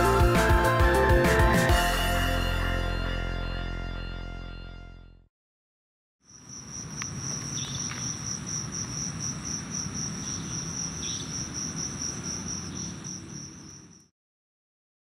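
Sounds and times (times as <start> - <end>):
insect trilling: 6.3 - 14.1.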